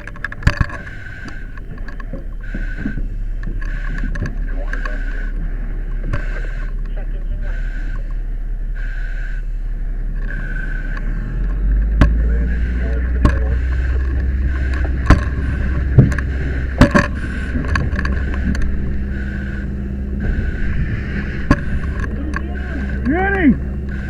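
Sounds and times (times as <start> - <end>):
equipment knocking and clanking: 0.0 - 5.0, 13.0 - 20.7
fire engine pump rumble: 0.0 - 24.0.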